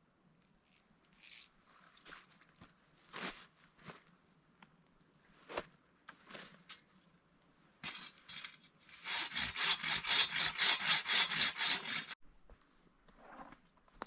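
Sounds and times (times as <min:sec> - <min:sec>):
hand saw cutting wood: 0:07.8 - 0:12.2.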